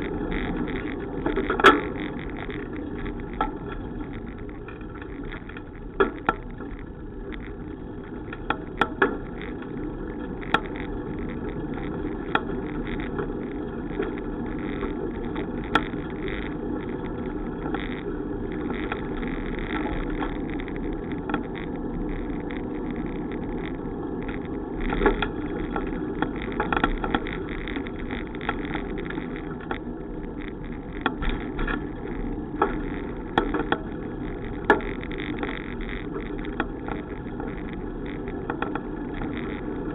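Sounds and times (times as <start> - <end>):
bicycle rolling: 0.0 - 39.9
bike clicks and knocks: 0.0 - 39.9
wind noise: 0.0 - 39.9.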